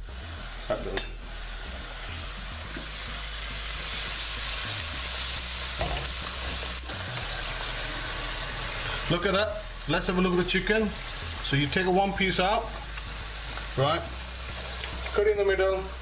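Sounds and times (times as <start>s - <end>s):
gravy sizzling in a frying pan: 0.0s - 16.0s.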